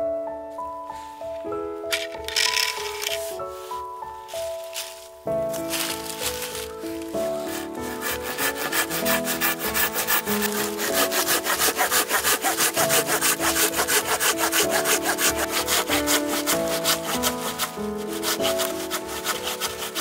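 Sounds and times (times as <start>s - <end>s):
background music: 0.0s - 20.0s
pull saw cutting wood: 5.6s - 20.0s.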